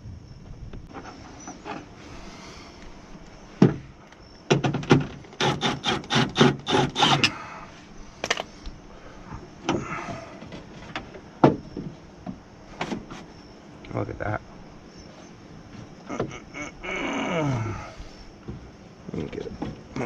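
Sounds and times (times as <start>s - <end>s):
knocks and clicks inside car door: 4.5s - 5.2s.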